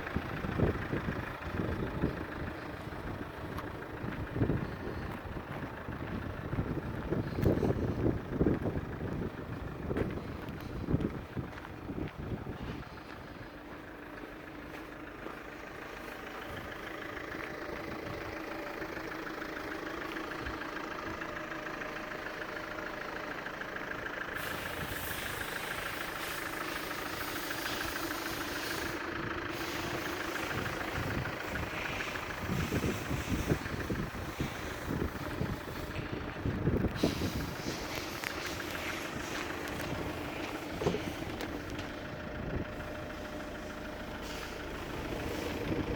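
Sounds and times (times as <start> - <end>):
low rumbling bumps: 0.0 - 18.4, 29.3 - 45.9
car engine idling: 0.0 - 45.9.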